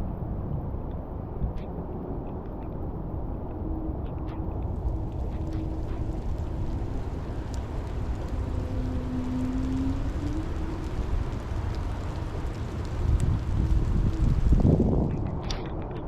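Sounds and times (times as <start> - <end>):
faint steady hum: 0.0 - 15.1
steady heavy rain: 3.8 - 15.4
rain drop ticks: 4.1 - 16.0.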